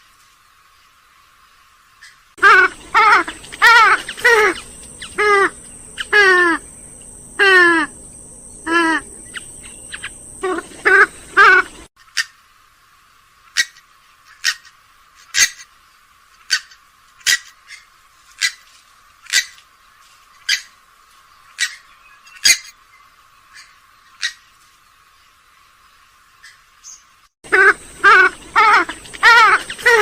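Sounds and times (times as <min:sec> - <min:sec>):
swamphen short sharp calls: 0:02.4 - 0:12.3, 0:26.4 - 0:30.0.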